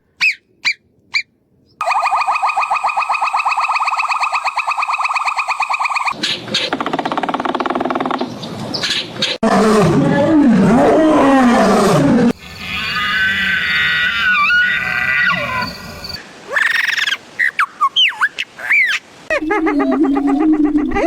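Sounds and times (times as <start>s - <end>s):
fast pulsing animal call: 1.8s - 7.2s, 16.5s - 21.0s
low wavering animal call: 9.4s - 21.0s
high wobbling animal call: 12.4s - 15.9s, 16.5s - 21.0s.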